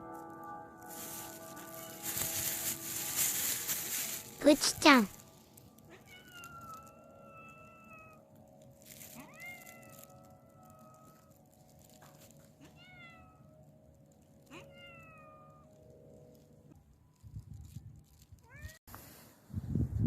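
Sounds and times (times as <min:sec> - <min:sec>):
cat meowing faintly: 0:05.9 - 0:08.2, 0:09.2 - 0:11.3.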